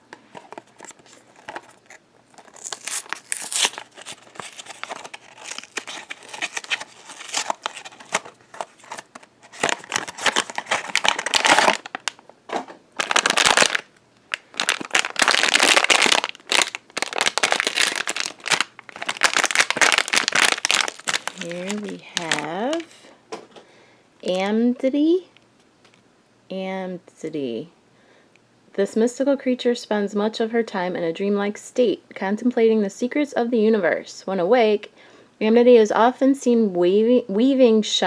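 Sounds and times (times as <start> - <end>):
packaging wrapper crinkling and tearing: 0.4 - 12.2, 13.0 - 23.0.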